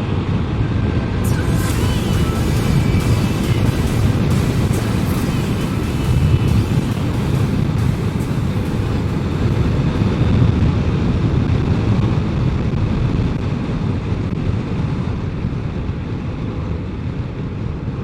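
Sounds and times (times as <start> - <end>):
motorcycle engine drone: 1.0 - 13.4.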